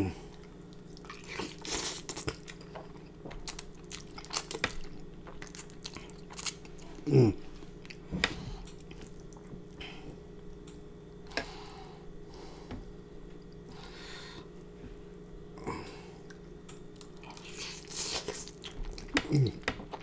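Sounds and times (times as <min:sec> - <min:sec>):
faint steady hum: 0:00.0 - 0:20.0
wet chewing and slurping: 0:00.3 - 0:07.0, 0:16.2 - 0:20.0
low voiced sound: 0:07.0 - 0:07.5.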